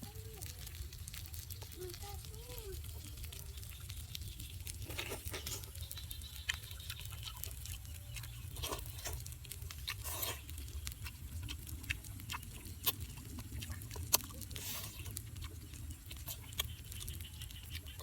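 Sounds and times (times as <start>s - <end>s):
wet chewing: 0.0s - 18.0s
lip-smacking clicks: 5.4s - 18.0s.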